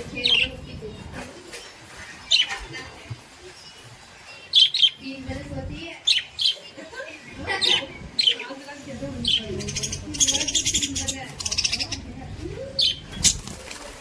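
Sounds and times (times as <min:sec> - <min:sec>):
parrots chirping: 0:03.7 - 0:05.2, 0:06.0 - 0:13.6.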